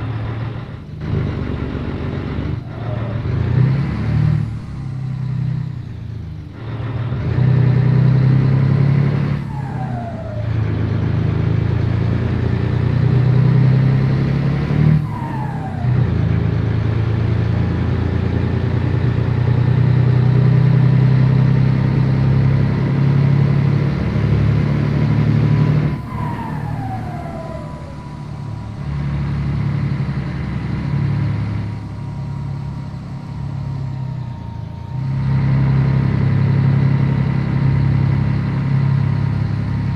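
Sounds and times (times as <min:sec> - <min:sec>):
truck diesel engine pulling: 0:00.0 - 0:39.9.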